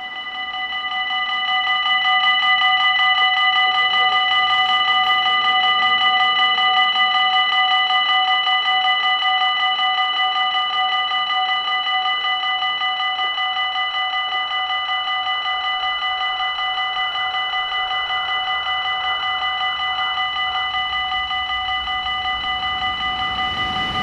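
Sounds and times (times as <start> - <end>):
faint approaching train: 0.0 - 9.8, 17.2 - 24.0
level crossing warning bells: 0.0 - 24.0.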